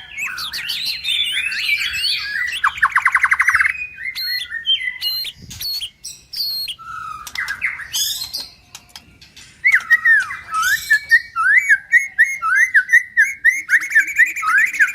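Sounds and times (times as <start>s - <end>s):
bird singing whistled phrases: 0.0s - 8.5s, 9.6s - 14.9s.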